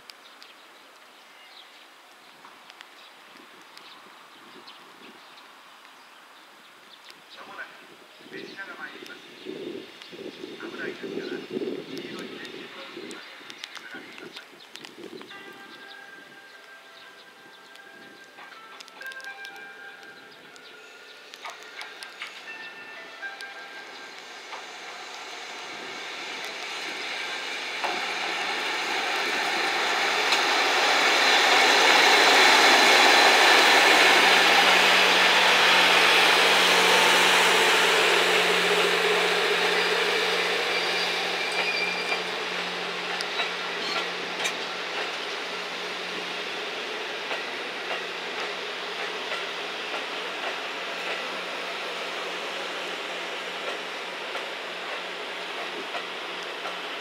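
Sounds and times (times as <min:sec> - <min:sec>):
electric locomotive rumbling past: 0:15.8 - 0:57.0
train wheel clicks: 0:26.4 - 0:37.6, 0:41.3 - 0:45.4, 0:47.2 - 0:51.4, 0:53.5 - 0:56.9.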